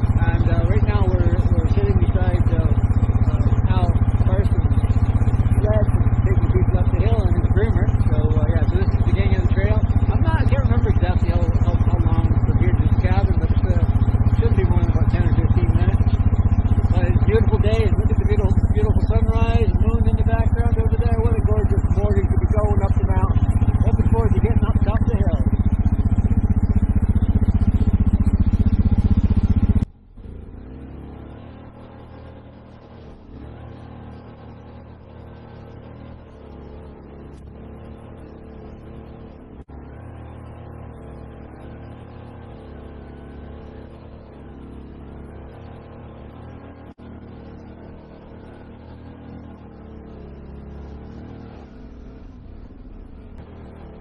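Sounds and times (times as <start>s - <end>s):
loud pulsing vehicle engine: 0.0s - 54.0s
quiet steady engine hum: 0.0s - 54.0s.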